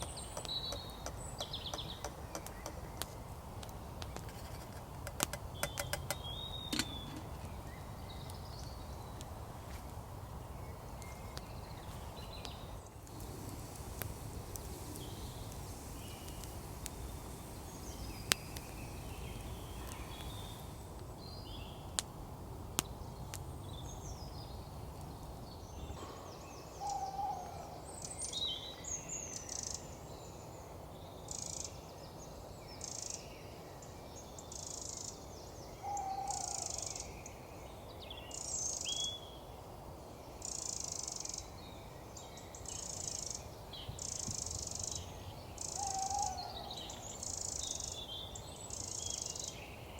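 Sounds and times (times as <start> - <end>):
birds chirping: 0.0 - 9.4, 10.3 - 22.0.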